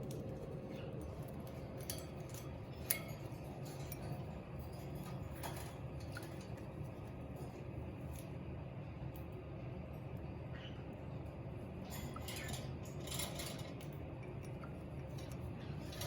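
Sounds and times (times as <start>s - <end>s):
bird clinking in water bowl: 1.5s - 6.6s.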